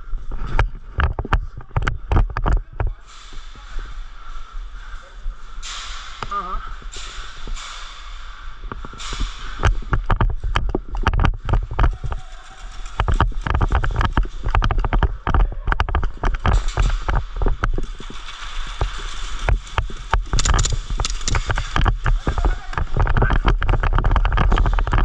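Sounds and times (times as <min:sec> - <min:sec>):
sharp clicks and knocks: 0:00.4 - 0:02.9, 0:05.6 - 0:25.0.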